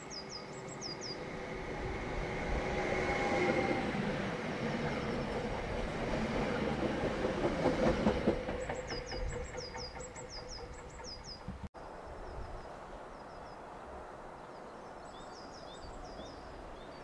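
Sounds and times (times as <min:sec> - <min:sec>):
electric train passing: 0:00.0 - 0:11.7.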